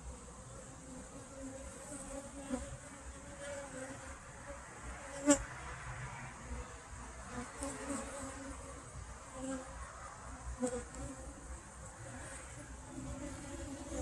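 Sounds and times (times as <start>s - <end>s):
honeybees buzzing: 6.3s - 14.0s.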